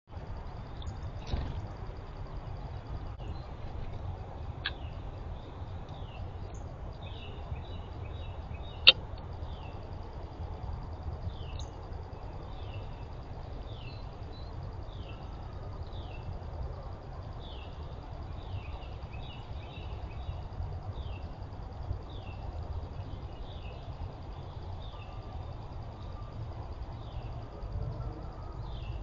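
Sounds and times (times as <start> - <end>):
steady low rumble: 0.1 - 29.0
birds chirping: 2.4 - 9.8.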